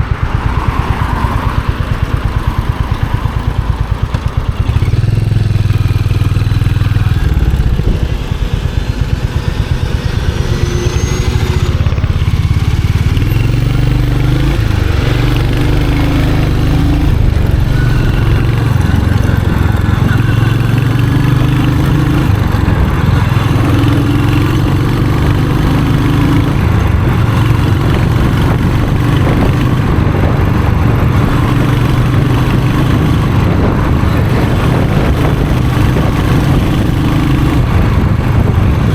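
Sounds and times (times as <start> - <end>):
motorcycle engine and exhaust: 0.0 - 38.9.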